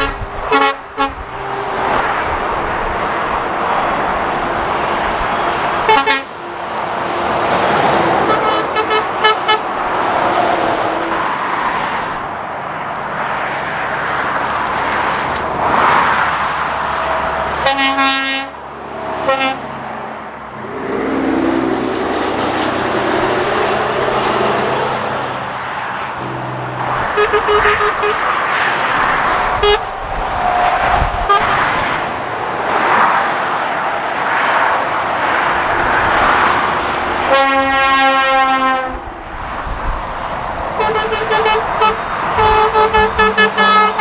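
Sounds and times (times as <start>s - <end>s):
vehicle horn tooting: 0.0s - 1.8s, 5.8s - 6.3s, 8.2s - 9.7s, 17.6s - 18.6s, 19.3s - 19.6s, 26.2s - 28.5s, 29.4s - 29.9s, 30.6s - 31.8s, 37.2s - 39.0s, 40.8s - 44.0s
heavy traffic passing: 0.0s - 44.0s.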